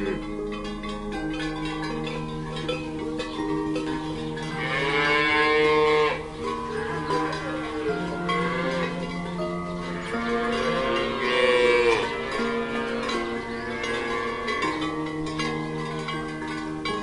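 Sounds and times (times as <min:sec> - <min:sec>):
background music: 0:00.0 - 0:17.0
cattle mooing: 0:04.4 - 0:14.9.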